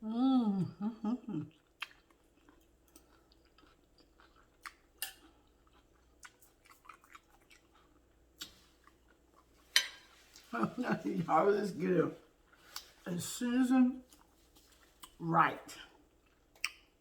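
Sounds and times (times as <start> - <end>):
soft chewing: 0.6 - 17.0.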